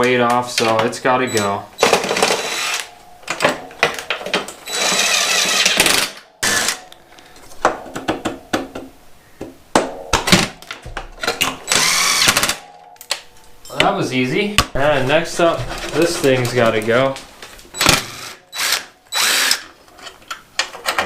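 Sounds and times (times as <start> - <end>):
cordless power driver running: 17.8 - 19.6.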